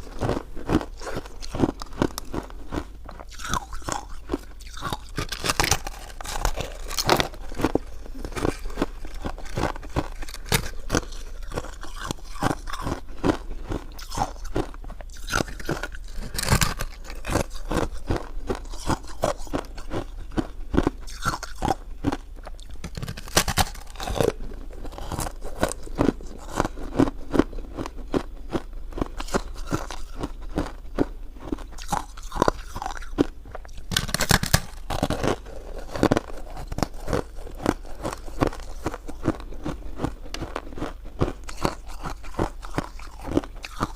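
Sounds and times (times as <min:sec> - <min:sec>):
person biting and chewing food: 0:00.0 - 0:43.9.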